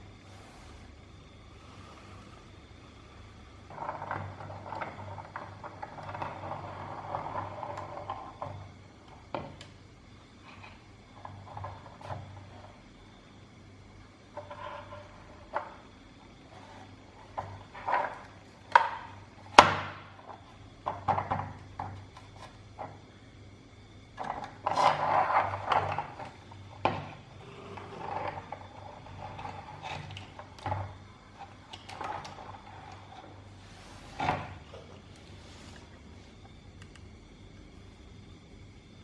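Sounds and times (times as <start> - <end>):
scraping or rubbing: 0.0 - 8.2, 31.8 - 36.4.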